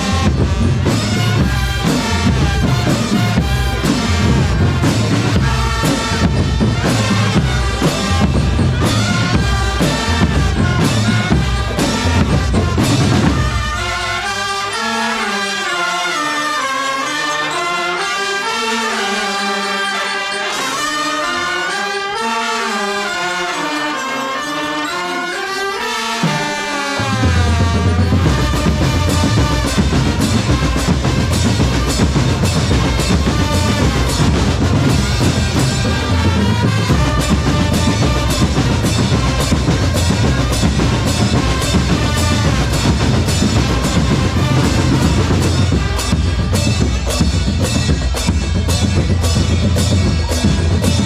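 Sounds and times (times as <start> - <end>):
heavy bass drums and percussion: 0.0 - 14.4, 26.2 - 51.0
brass section playing melody: 0.0 - 51.0.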